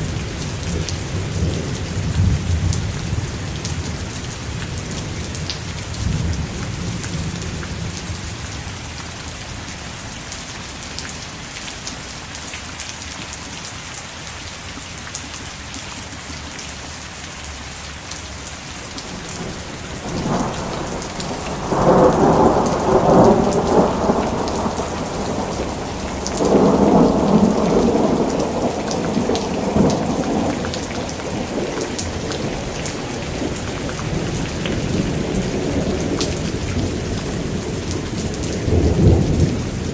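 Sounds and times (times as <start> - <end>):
steady rain: 0.0 - 39.9
thunder rolling: 19.0 - 39.9.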